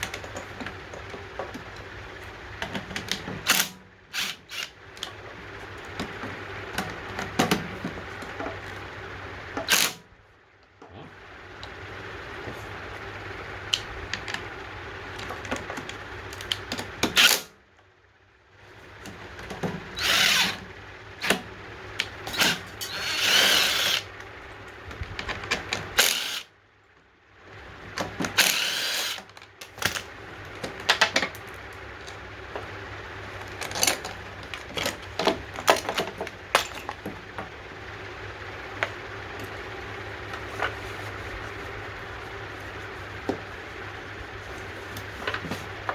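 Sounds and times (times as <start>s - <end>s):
steady low hum: 0.0s - 45.9s
tools and metal parts clicking: 22.0s - 24.1s, 25.2s - 26.5s, 33.4s - 37.1s.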